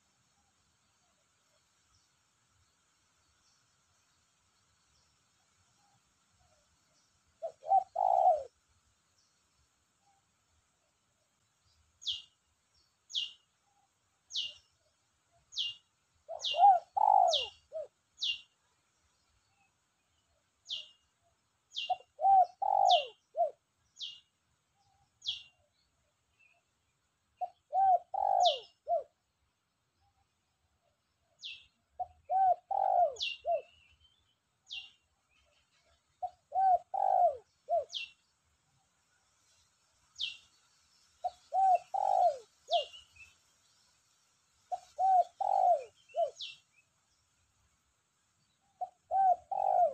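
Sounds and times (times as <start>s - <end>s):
dove cooing: 7.4s - 8.6s, 16.3s - 18.4s, 21.8s - 23.6s, 27.4s - 29.2s, 31.5s - 33.8s, 36.2s - 38.1s, 41.2s - 43.0s, 44.7s - 46.6s, 48.8s - 49.9s
bird high chirps: 15.5s - 18.5s, 41.2s - 43.4s.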